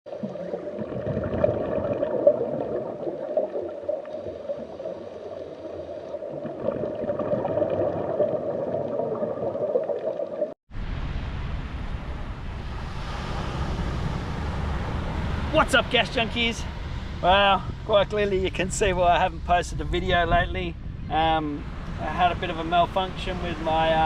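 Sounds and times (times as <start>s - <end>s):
underwater bubbles gurgling: 0.1s - 10.6s
steady low rumble: 10.7s - 24.0s.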